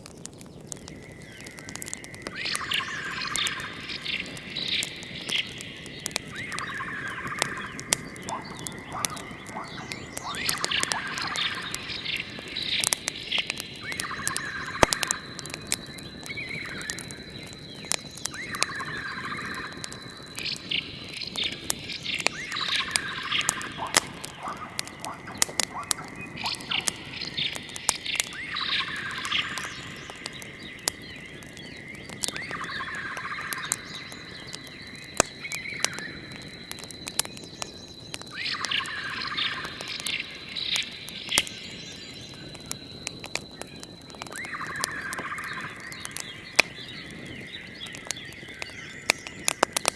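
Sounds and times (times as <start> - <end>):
fire crackling: 0.0 - 49.9
bird call: 1.0 - 49.9.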